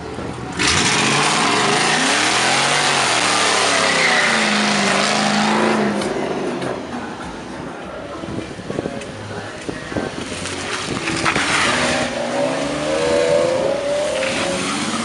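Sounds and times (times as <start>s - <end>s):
car engine revving hard: 0.6s - 6.4s, 10.8s - 15.0s.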